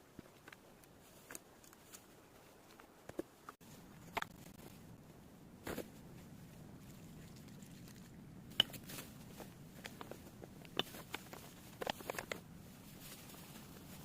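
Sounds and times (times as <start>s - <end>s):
faint low hum: 0.0s - 14.0s
light clicks and crackles: 6.8s - 14.0s.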